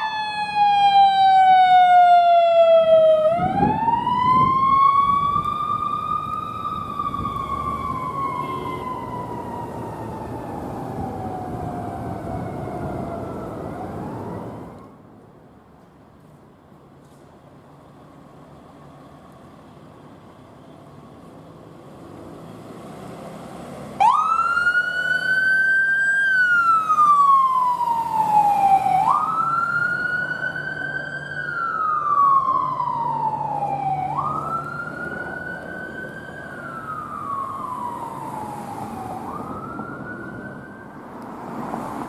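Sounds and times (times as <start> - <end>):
electronic siren wailing: 0.0 - 14.8
road noise: 0.0 - 42.0
vehicle engine: 16.2 - 42.0.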